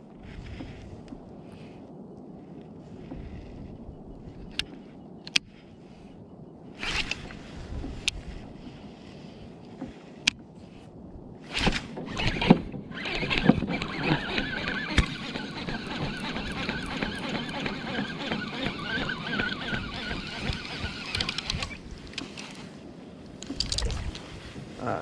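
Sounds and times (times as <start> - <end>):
water splashing against kayak hull: 11.4 - 24.8.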